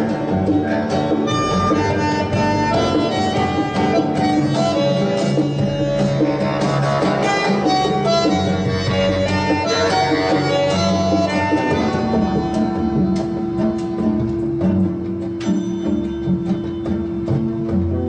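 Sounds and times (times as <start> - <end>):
instrumental music through speakers: 0.0 - 18.0.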